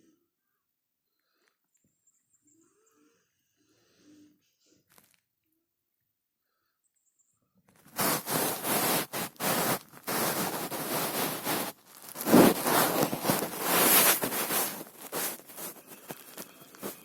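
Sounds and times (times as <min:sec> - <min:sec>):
loud rustling: 0:07.9 - 0:17.0.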